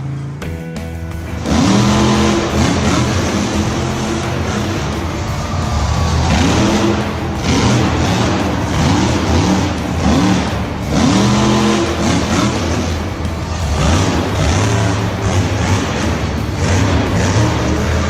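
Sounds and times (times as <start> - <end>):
engine revving: 1.1 - 18.0.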